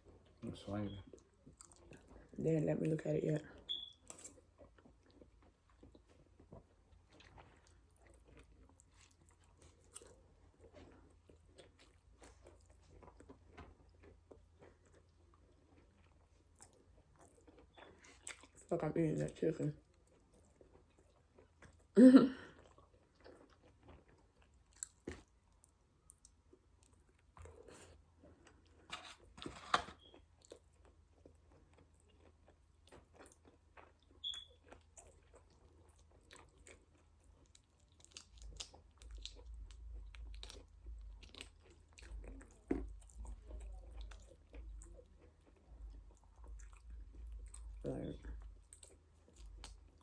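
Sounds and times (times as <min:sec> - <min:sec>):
person chewing and crunching: 0:00.0 - 0:02.4, 0:03.7 - 0:18.7, 0:19.8 - 0:50.0
faint low rumble: 0:37.4 - 0:50.0.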